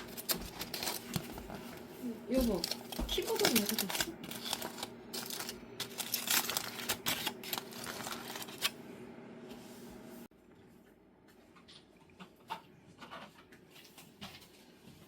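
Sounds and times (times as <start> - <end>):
objects clicking and rustling: 0.0 - 8.7
steady low hum: 0.0 - 14.2.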